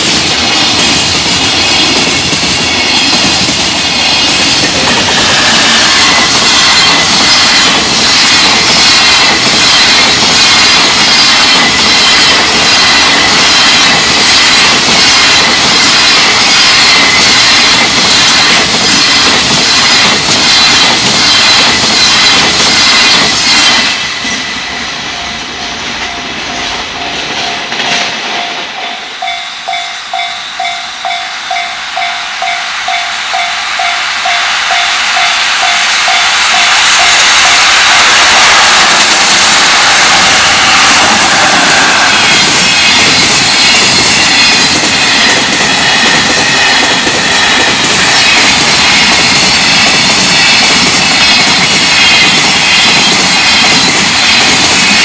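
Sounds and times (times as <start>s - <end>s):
freight train wheels clattering: 0.0s - 55.0s
level crossing warning bell: 24.2s - 37.7s.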